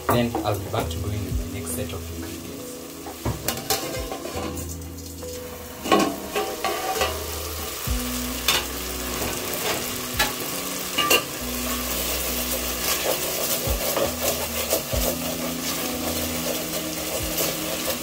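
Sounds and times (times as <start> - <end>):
onions sizzling in a pot: 0.0 - 18.0
wooden spoon scraping a pot: 11.9 - 18.0.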